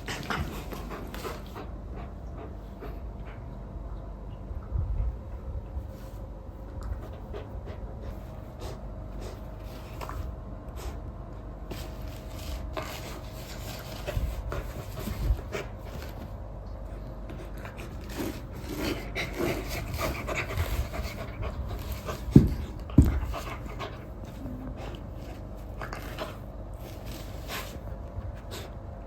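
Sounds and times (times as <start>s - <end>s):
dog panting: 0.0s - 3.5s, 6.8s - 11.0s, 17.3s - 28.8s.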